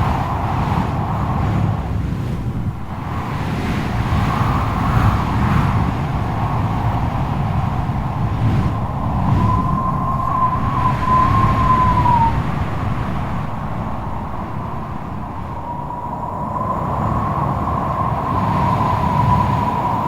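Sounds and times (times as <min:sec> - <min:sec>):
low rumble of gusts: 0:00.0 - 0:20.0
strong wind howling: 0:00.0 - 0:20.0
wavering wind whistle: 0:02.7 - 0:20.0.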